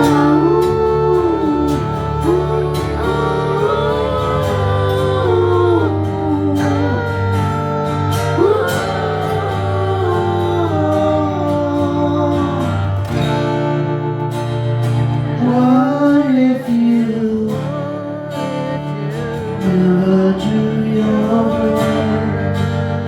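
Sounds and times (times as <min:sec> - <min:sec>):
low bass notes: 0:00.0 - 0:15.8
gliding bending lead melody: 0:00.0 - 0:21.0
acoustic guitar: 0:00.0 - 0:23.0.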